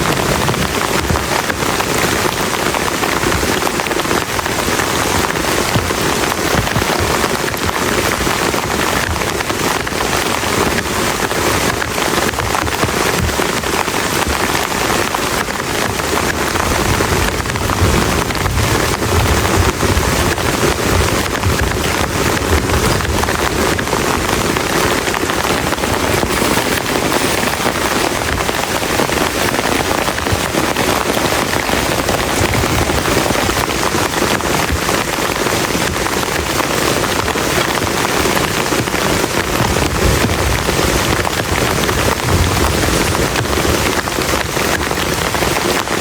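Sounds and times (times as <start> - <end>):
heavy rain falling: 0.0 - 46.0
low rumble: 39.9 - 44.2.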